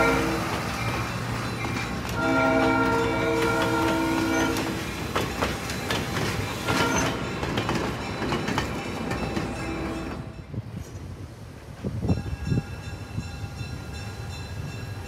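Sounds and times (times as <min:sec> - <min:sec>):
locomotive air horn: 0:00.0 - 0:00.7, 0:02.2 - 0:04.8, 0:06.6 - 0:07.2
train rumbling past: 0:00.0 - 0:15.0
wheels clicking over rail joints: 0:00.1 - 0:11.2.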